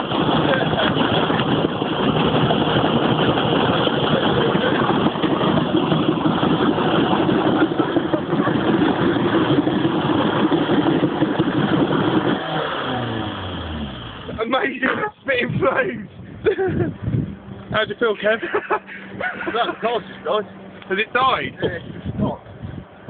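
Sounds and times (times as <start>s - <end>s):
diesel engine revving high: 0.0s - 15.1s.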